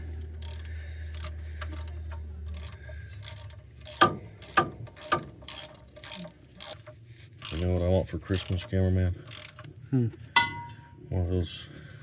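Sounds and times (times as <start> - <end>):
hand ratchet clicking: 0.4 - 7.7, 8.3 - 9.7.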